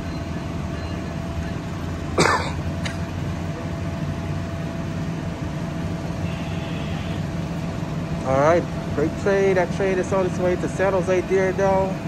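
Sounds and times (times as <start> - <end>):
diesel locomotive rumble: 0.0 - 12.0.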